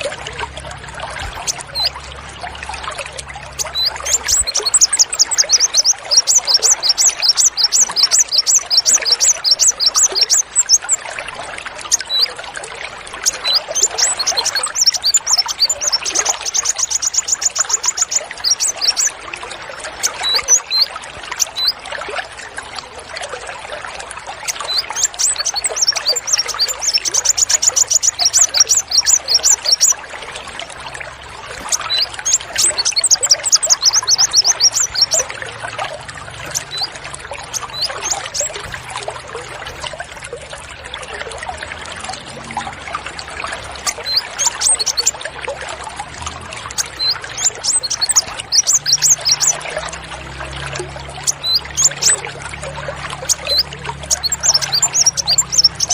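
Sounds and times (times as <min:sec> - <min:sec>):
songbirds trilling: 0:00.0 - 0:55.9
trickling running water: 0:00.0 - 0:55.9.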